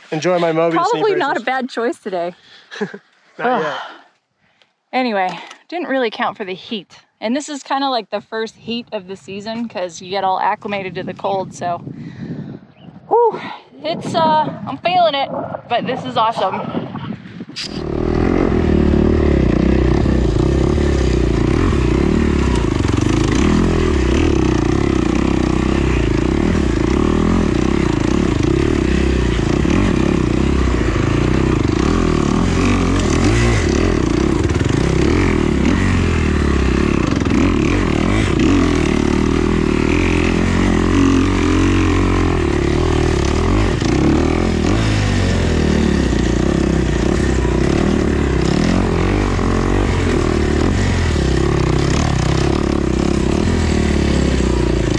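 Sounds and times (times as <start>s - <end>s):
dirt bike engine running: 14.1s - 54.9s.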